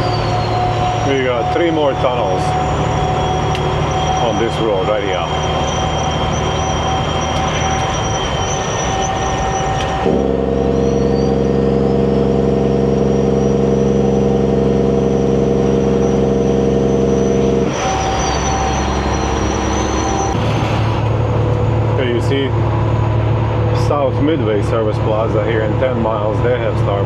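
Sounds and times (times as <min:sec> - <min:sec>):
turbo whistle: 0:00.0 - 0:21.2
truck engine brake barking: 0:00.0 - 0:21.3
road noise: 0:00.0 - 0:27.0.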